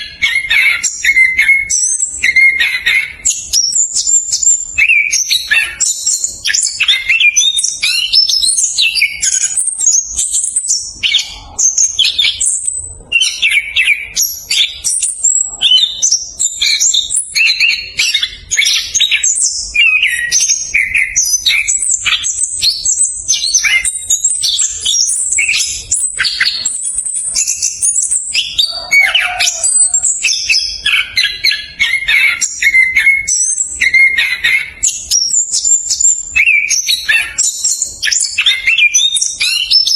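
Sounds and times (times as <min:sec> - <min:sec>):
bird singing rolling song: 0:00.0 - 0:39.9.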